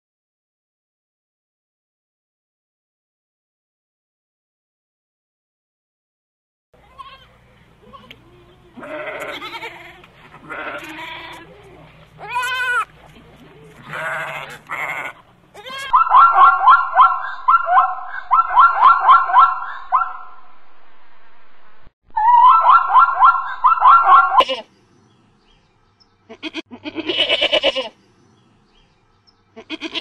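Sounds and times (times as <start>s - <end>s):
goat bleating: 6.8s - 16.0s, 24.4s - 24.7s, 26.3s - 28.0s, 29.6s - 30.0s
zebra barking call: 13.9s - 20.3s, 22.2s - 24.6s.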